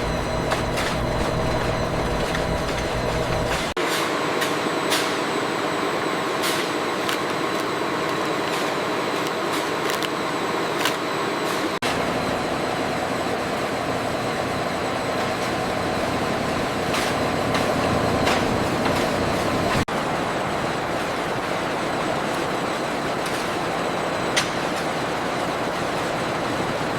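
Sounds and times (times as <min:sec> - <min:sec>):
mechanical rumble and hiss: 0:00.0 - 0:03.8, 0:11.5 - 0:26.9.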